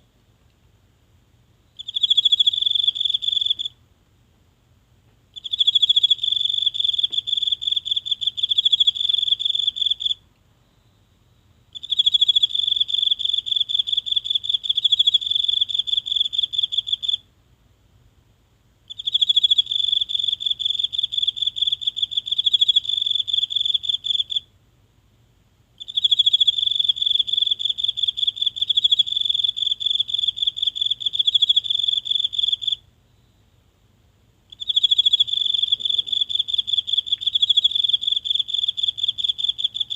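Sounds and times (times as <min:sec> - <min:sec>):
insect trilling: 0:34.5 - 0:39.9.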